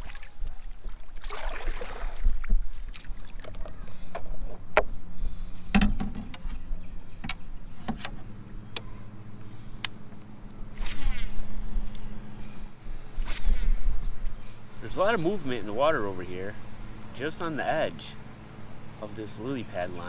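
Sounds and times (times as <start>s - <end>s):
paddle splashing in water: 0.0s - 4.3s
low steady hum: 0.0s - 20.0s.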